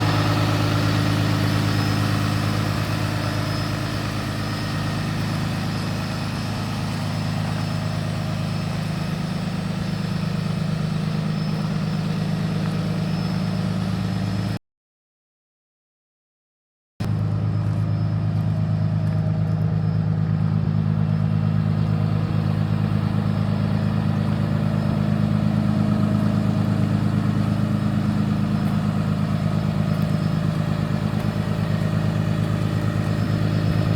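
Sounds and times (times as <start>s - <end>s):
diesel truck idling: 0.0s - 14.6s, 17.0s - 33.9s.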